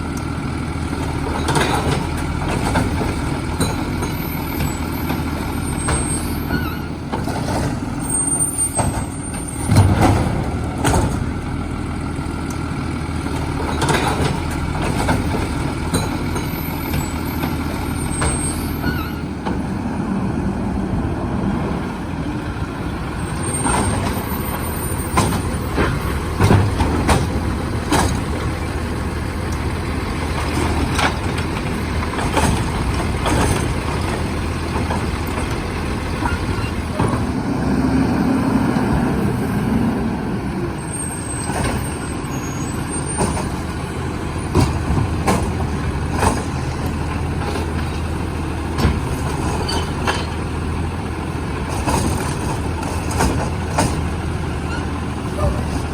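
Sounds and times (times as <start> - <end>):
garbage truck engine running: 0.0 - 55.9
metal clanks and knocks: 1.2 - 8.0, 8.7 - 11.5, 13.3 - 19.7, 23.6 - 28.8, 30.2 - 37.4, 48.7 - 50.6.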